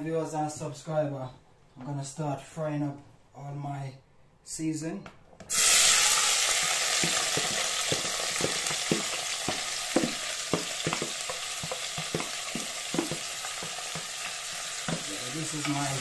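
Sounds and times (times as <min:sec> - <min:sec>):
vegetables sizzling in hot oil: 0:05.5 - 0:16.0
spoon knocking against pot: 0:07.0 - 0:15.1.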